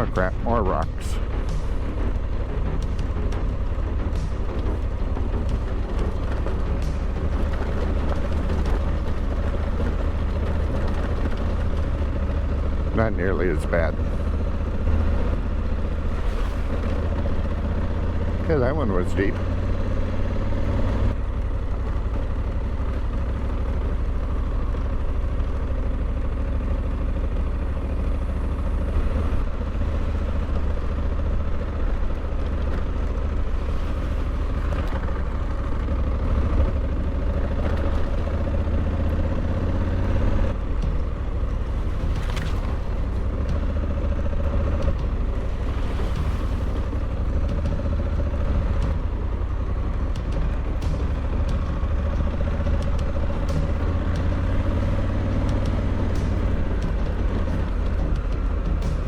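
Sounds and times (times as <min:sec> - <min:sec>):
motorcycle engine rumbling: 0:00.0 - 0:59.0.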